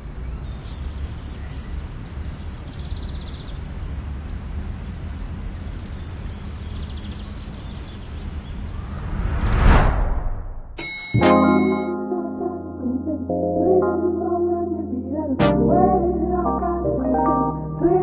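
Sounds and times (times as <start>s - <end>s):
rushing noise: 8.4s - 10.8s.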